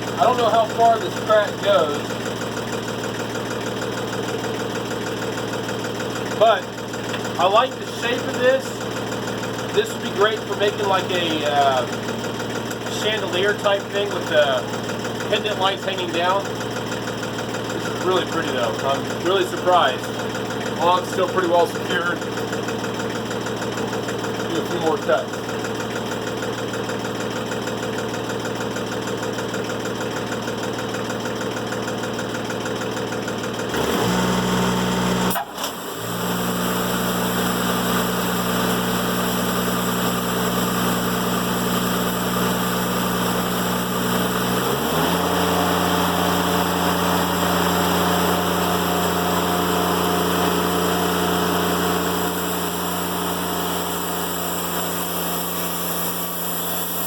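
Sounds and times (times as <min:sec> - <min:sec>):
sawmill engine running: 0:00.0 - 0:57.0
bandsaw cutting log: 0:09.3 - 0:14.7, 0:17.0 - 0:23.4, 0:33.7 - 0:57.0.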